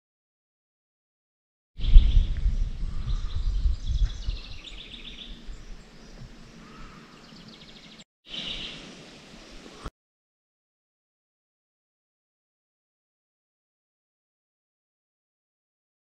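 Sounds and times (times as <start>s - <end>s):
small birds chirping: 1.8s - 9.9s.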